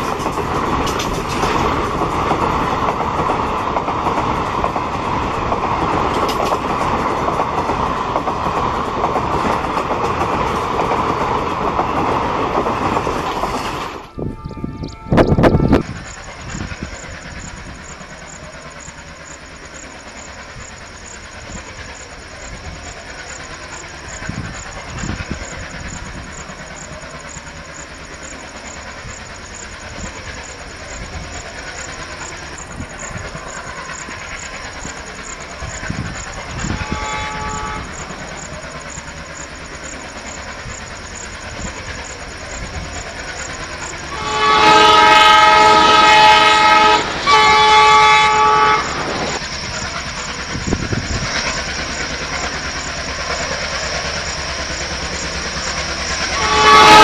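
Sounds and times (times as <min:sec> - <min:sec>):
train rumbling on rails: 0:00.0 - 0:57.0
loud multi-note train horn: 0:14.0 - 0:15.9, 0:36.6 - 0:38.0, 0:44.1 - 0:49.3, 0:56.3 - 0:57.0
locomotive horn blast: 0:14.1 - 0:15.8, 0:36.6 - 0:38.0, 0:44.1 - 0:49.2, 0:56.3 - 0:57.0.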